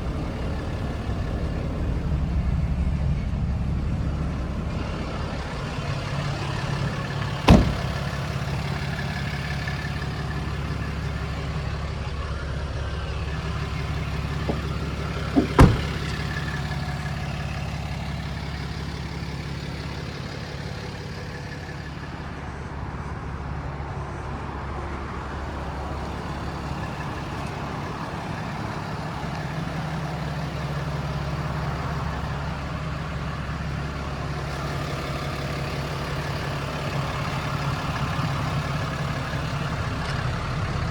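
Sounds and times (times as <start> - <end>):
pickup engine idling: 0.0 - 22.7, 25.3 - 40.9
sharp knock: 7.5 - 8.0, 15.4 - 16.2.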